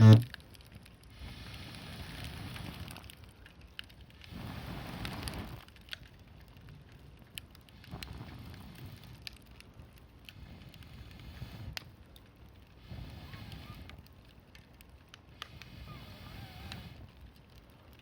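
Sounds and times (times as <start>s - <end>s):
low steady rumble: 0.0s - 17.9s
campfire crackling: 0.0s - 18.0s.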